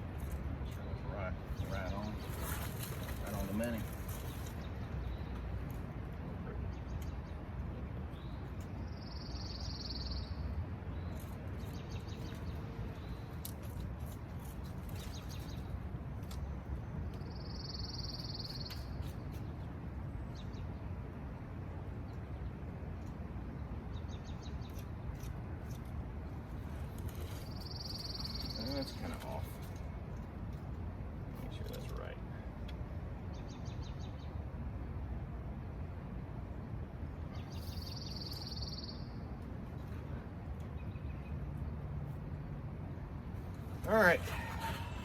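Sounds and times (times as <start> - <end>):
low outdoor rumble: 18.9 - 45.0.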